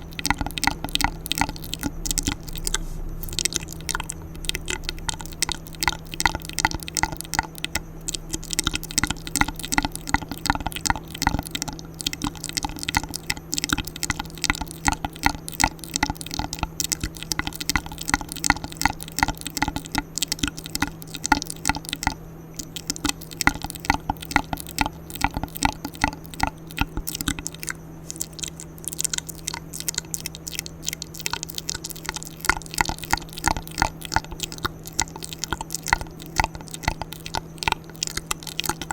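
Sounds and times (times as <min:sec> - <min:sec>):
low hum: 0:00.0 - 0:38.9
tongue clicks and lip smacks: 0:00.0 - 0:38.9.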